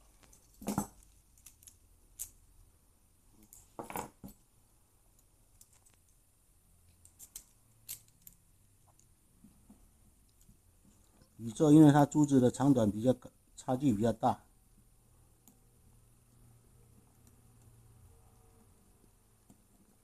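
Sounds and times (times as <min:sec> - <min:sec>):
lock pick clicking in a lock: 0:07.1 - 0:08.4.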